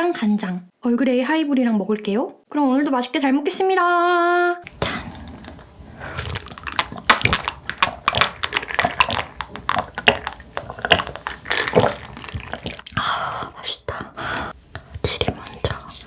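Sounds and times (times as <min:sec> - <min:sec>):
sipping and swallowing: 0:04.7 - 0:16.0
wet mouth clicks: 0:04.7 - 0:16.0.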